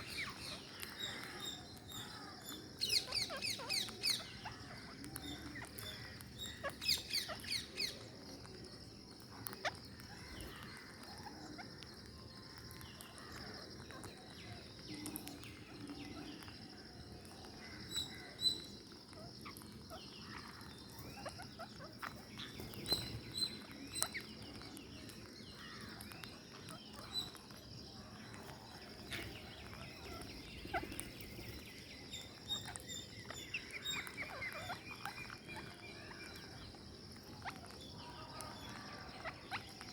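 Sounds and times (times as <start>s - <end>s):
parakeet high chirps: 0.0s - 0.7s, 2.9s - 8.0s, 18.6s - 24.3s, 25.9s - 27.5s, 28.4s - 31.4s, 32.2s - 36.2s, 39.1s - 39.9s
beaks clicking and crunching food: 0.0s - 39.9s.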